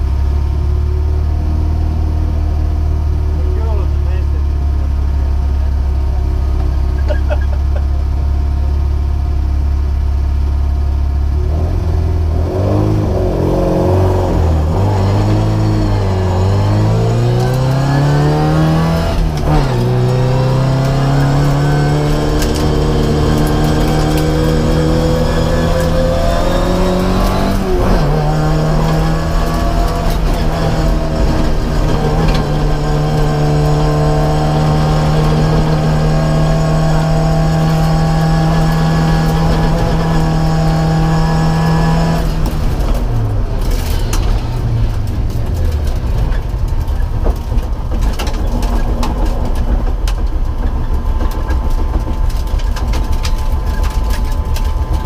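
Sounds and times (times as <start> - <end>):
car engine revving: 10.3 - 55.0
clicks and rattles: 43.6 - 55.0.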